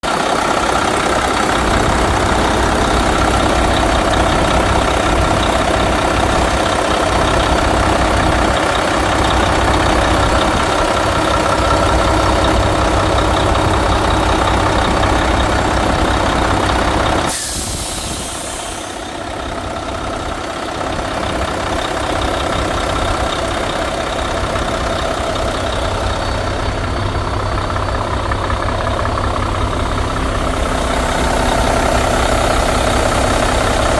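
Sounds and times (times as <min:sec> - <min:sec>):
diesel truck engine idling: 0:00.0 - 0:33.9
air brake hiss: 0:17.3 - 0:19.3.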